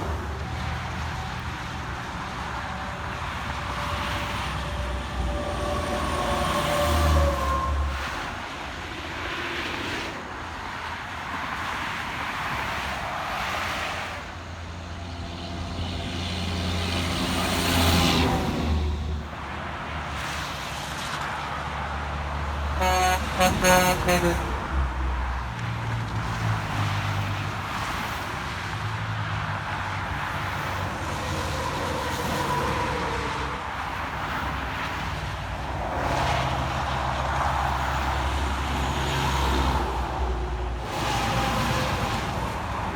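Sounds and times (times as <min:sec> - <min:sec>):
road traffic with trucks: 0:00.0 - 0:42.9
horn short blasts: 0:22.8 - 0:24.7.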